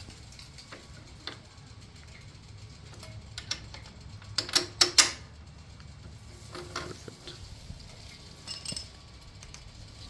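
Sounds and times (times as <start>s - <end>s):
metal washer and bolt clicking: 2.9s - 5.2s.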